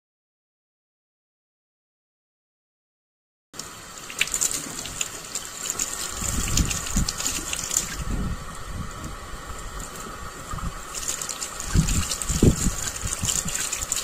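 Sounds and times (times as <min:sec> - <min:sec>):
water gushing and splashing: 0:03.6 - 0:14.0.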